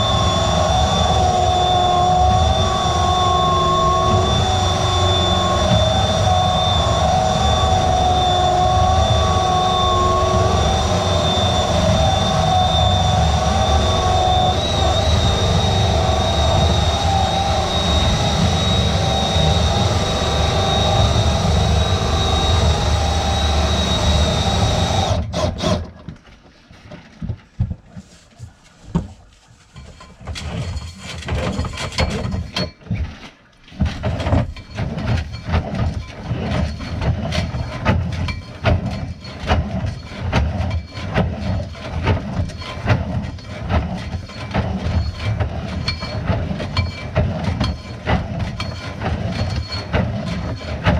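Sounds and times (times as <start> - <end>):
drain-cleaning machine motor whine: 0.0 - 25.8.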